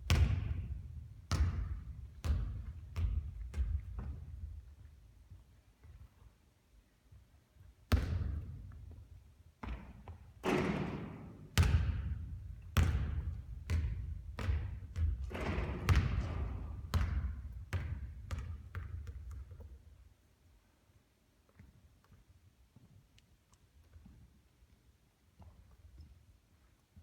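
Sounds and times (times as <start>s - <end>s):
basketball bouncing on court: 0.0s - 4.6s, 7.9s - 9.0s, 9.6s - 19.8s.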